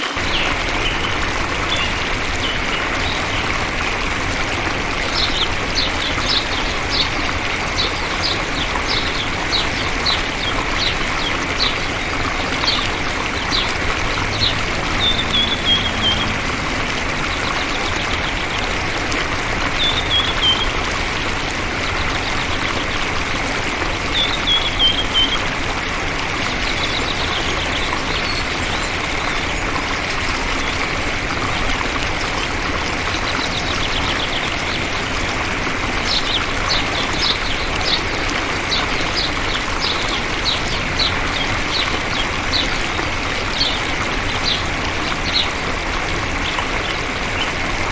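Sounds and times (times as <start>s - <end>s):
songbird chirps and trills: 5.1s - 18.8s.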